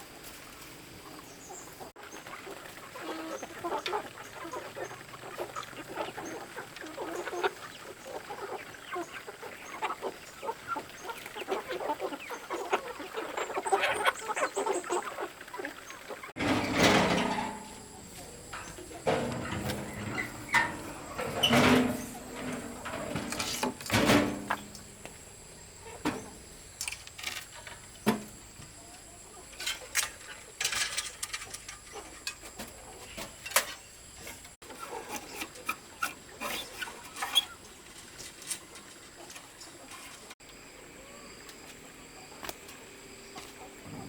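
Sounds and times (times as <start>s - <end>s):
farm animals calling: 0.6s - 26.8s.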